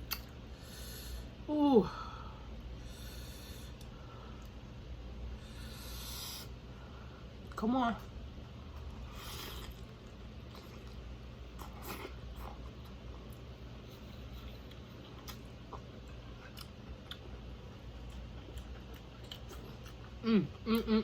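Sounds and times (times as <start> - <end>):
low steady hum: 0.0 - 21.0
person chewing food: 8.4 - 21.0.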